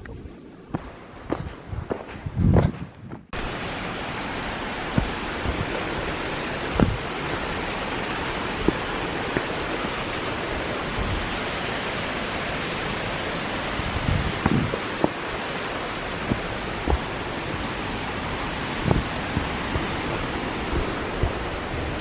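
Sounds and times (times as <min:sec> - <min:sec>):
rushing flowing water: 0:03.4 - 0:22.0.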